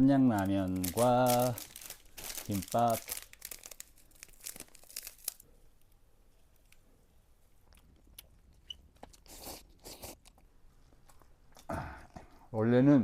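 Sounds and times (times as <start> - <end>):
food packaging crinkling: 0.1 - 5.5.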